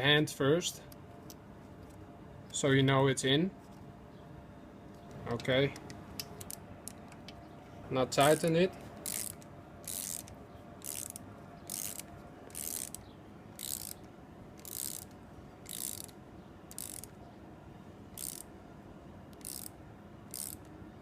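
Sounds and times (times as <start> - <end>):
socket ratchet clicking: 8.2 - 17.2, 18.2 - 18.5, 19.3 - 20.8.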